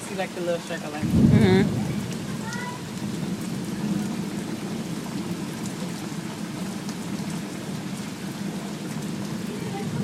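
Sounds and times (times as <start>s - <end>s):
steady rain hiss: 0.0s - 10.0s
faint raindrop ticks: 2.0s - 10.0s.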